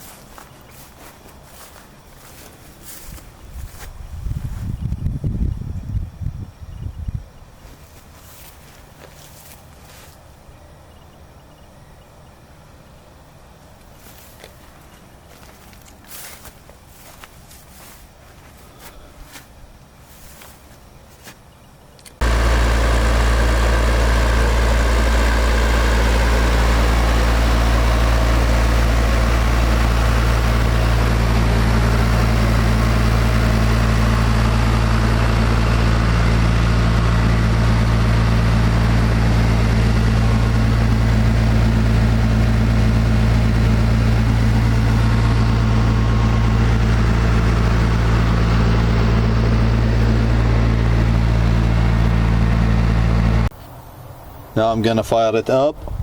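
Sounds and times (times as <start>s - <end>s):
bulldozer diesel engine idling: 0.0s - 4.1s, 22.2s - 55.1s
faint footsteps: 0.0s - 5.0s, 7.6s - 10.3s, 13.6s - 21.5s.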